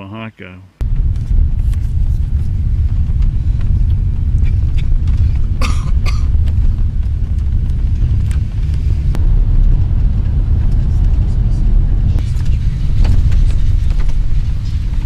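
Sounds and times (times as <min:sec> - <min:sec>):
low rumble: 0:00.8 - 0:15.0
short double cough: 0:05.6 - 0:06.3.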